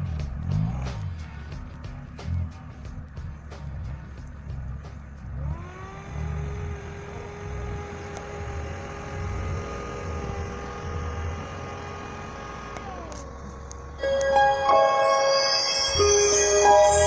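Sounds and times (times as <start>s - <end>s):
music: 0.0s - 6.5s, 14.0s - 17.0s
car engine running: 0.0s - 14.0s.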